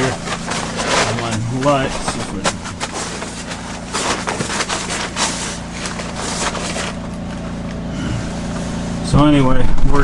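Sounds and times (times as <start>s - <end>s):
gear being handled: 0.0s - 7.6s
portable generator humming: 0.0s - 10.0s.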